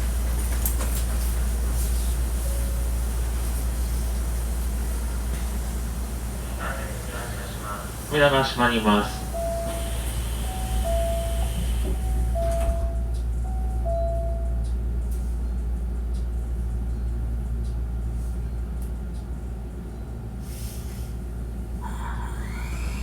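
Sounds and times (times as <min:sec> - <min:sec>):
train car low hum: 0:00.0 - 0:23.0
two-note train door chime: 0:08.8 - 0:14.9.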